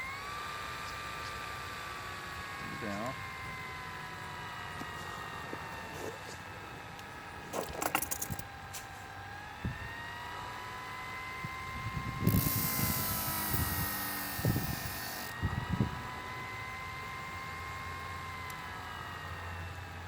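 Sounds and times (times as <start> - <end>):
small electric motor whine: 0.0 - 20.0
knife grinding on abrasive: 12.3 - 15.3.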